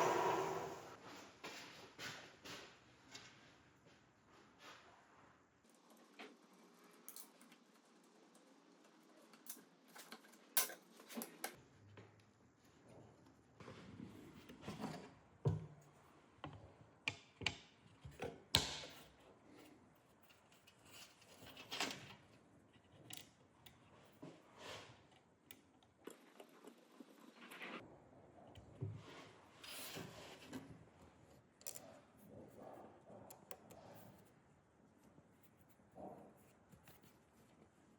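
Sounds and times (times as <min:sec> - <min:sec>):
small parts clicking and tapping: 0:06.9 - 0:11.6, 0:31.6 - 0:32.3.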